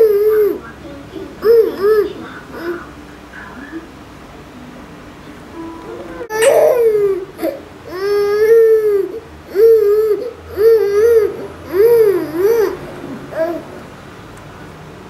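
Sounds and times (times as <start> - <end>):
baby crying: 6.3 - 13.7.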